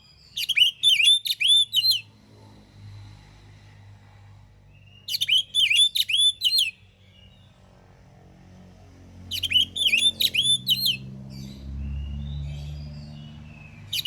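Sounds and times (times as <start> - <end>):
bird singing whistled notes: 0.0 - 2.1, 4.8 - 7.5, 9.3 - 14.0.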